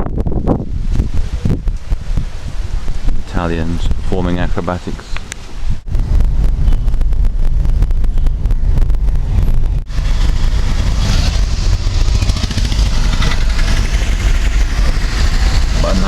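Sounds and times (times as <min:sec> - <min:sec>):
motor vehicle engine rumbling: 0:05.2 - 0:16.0.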